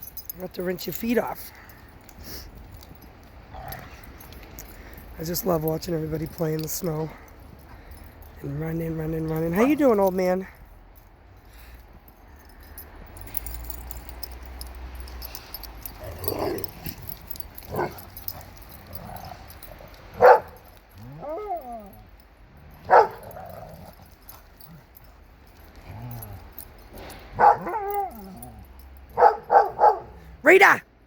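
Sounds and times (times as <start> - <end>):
dogs barking and yipping: 15.2 - 30.8
dog whining: 21.0 - 22.0.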